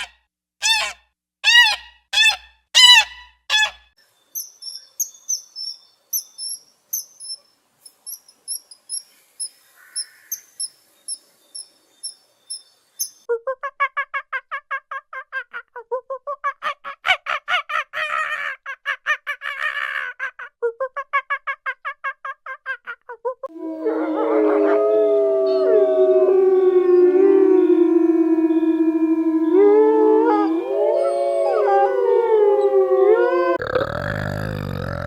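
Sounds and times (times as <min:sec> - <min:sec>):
high thin bird chirps: 0:00.0 - 0:13.2.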